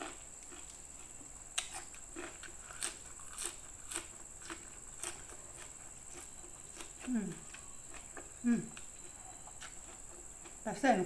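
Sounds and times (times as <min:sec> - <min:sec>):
crisp crunch of chewing greens: 0:01.6 - 0:08.9.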